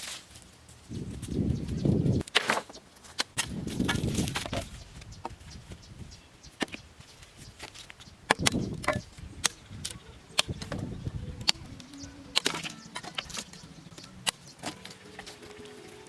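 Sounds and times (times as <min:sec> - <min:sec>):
hand tool chopping bamboo: 0:07.6 - 0:15.5.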